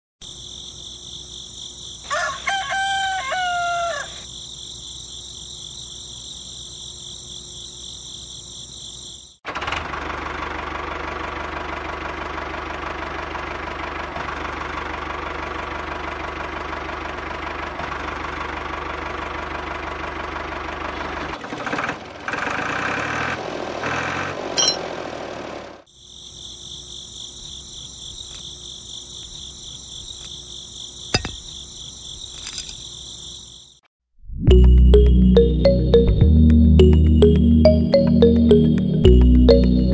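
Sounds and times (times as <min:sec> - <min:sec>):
crickets chirring: 0:00.2 - 0:09.4, 0:25.9 - 0:33.8
rooster crowing: 0:02.0 - 0:04.2.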